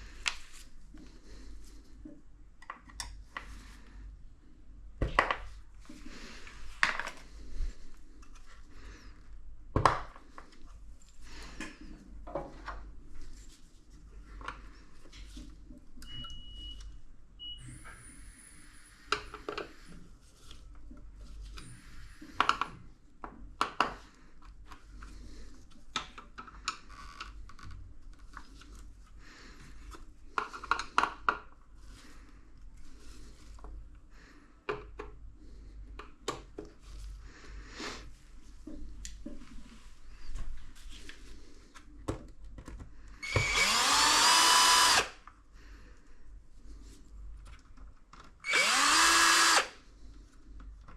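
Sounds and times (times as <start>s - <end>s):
power drill whining: 43.2s - 45.2s, 48.4s - 49.8s.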